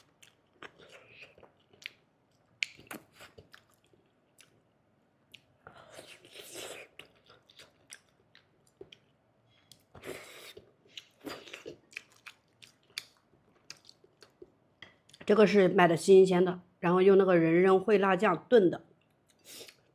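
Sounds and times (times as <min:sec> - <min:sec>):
chewing and wet mouth sounds: 0:00.0 - 0:15.2.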